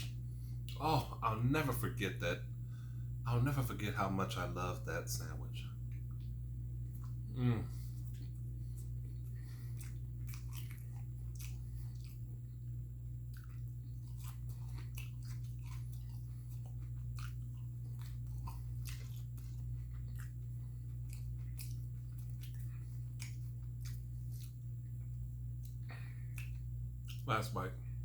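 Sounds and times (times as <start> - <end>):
steady low hum: 0.0 - 28.0
person biting and chewing: 6.9 - 12.3, 13.2 - 27.3.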